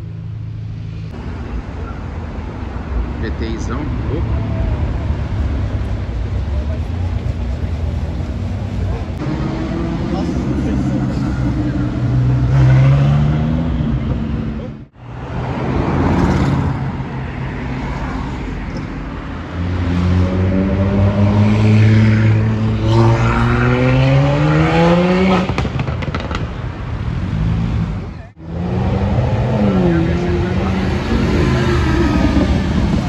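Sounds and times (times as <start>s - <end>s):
sharp cracks: 25.4s - 26.7s.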